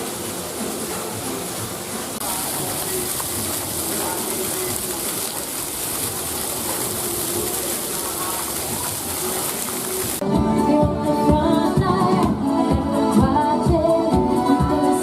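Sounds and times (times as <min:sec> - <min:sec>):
faint voices: 0:00.0 - 0:10.2
running water rushing: 0:00.0 - 0:10.3.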